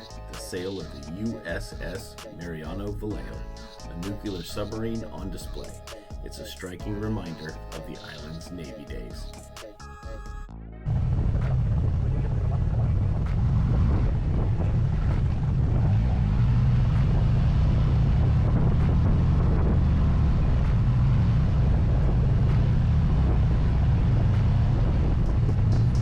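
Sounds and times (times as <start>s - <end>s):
motorcycle engine rumbling: 10.9s - 26.0s
wind rushing over microphone: 10.9s - 26.0s.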